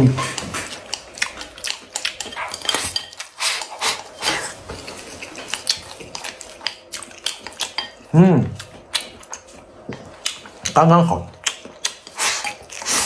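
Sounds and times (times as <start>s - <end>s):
utensils clinking against bowl: 1.6s - 8.1s.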